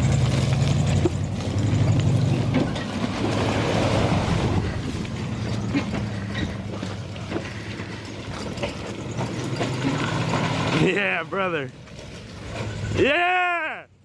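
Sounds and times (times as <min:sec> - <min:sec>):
engine idling: 0:00.0 - 0:13.2.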